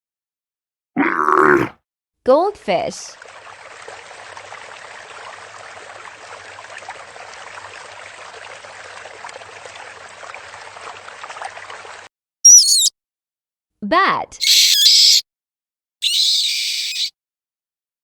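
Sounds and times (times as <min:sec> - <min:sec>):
water trickling and splashing: 0:03.0 - 0:12.1.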